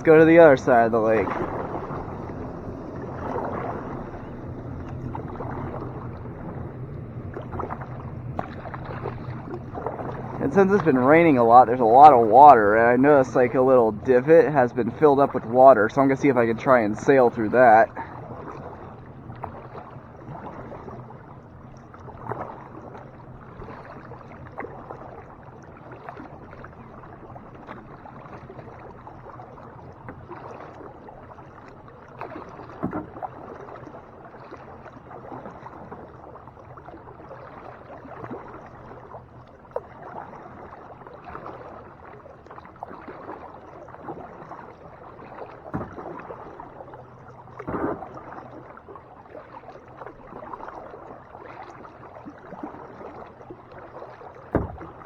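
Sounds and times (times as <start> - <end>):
paddle strokes splashing: 0.0 - 55.0
short knocks: 54.5 - 54.9.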